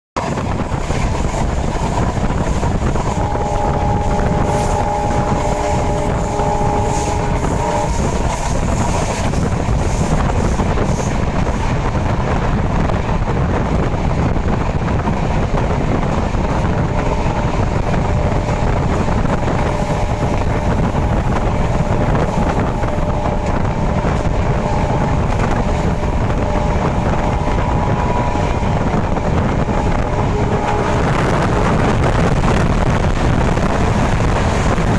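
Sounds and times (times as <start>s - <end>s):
train rumbling: 0.2s - 34.9s
faint chord of several tones: 3.2s - 8.6s.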